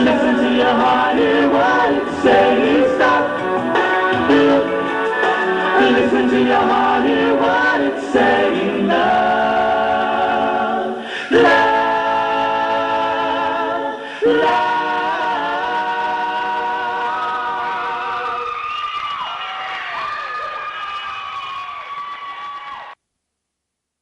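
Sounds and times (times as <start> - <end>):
male vocal trio singing harmony: 0.0 - 18.7.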